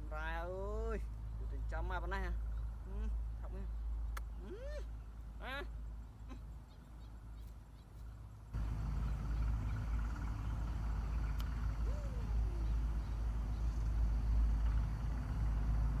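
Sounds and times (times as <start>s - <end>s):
steady low rumble: 0.0s - 16.0s
short rising call: 10.3s - 14.1s.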